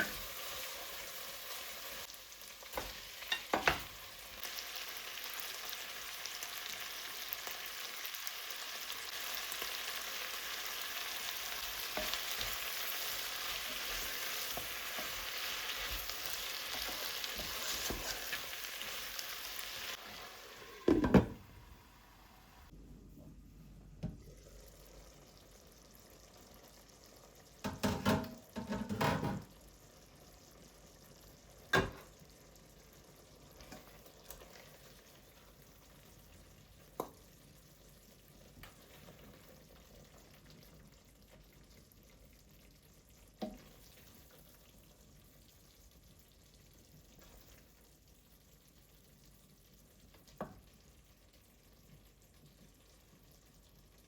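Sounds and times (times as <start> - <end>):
faint steady hiss: 0.0 - 28.4
kitchen clatter: 2.7 - 4.0, 20.8 - 21.5, 27.6 - 29.6, 31.7 - 32.1.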